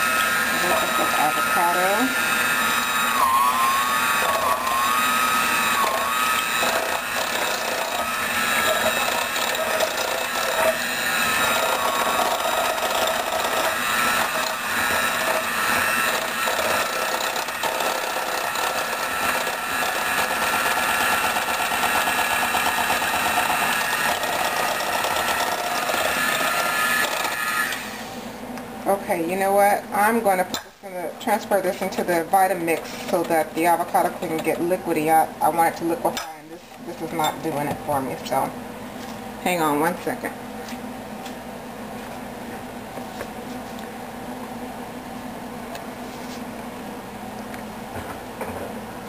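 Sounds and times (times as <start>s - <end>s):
electric mixer motor whining: 0.0s - 28.1s.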